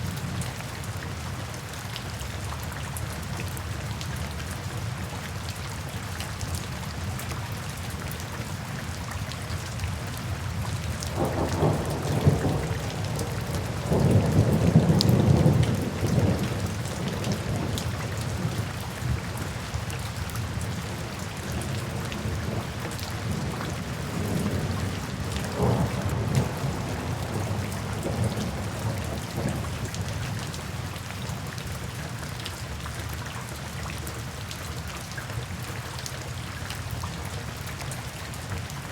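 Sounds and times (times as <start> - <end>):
thunder rumbling: 11.1 - 18.5, 23.2 - 29.9.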